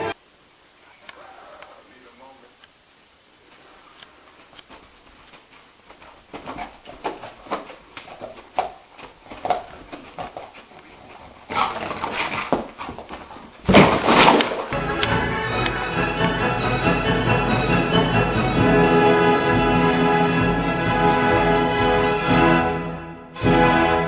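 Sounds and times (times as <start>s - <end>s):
music: 14.8s - 24.0s.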